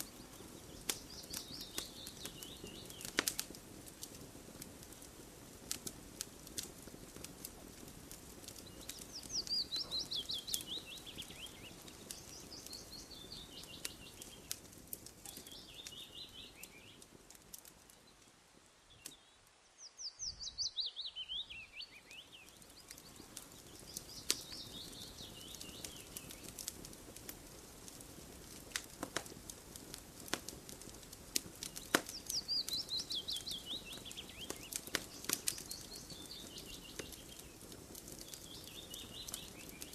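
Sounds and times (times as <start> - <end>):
songbird singing falling phrases: 0.0 - 3.4, 8.4 - 26.7, 31.5 - 39.9
campfire crackling and popping: 0.0 - 19.4, 20.2 - 39.9.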